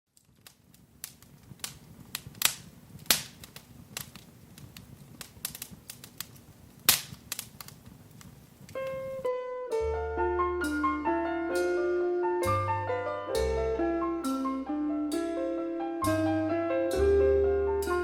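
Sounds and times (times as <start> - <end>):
wood fire crackling: 0.1 - 18.0.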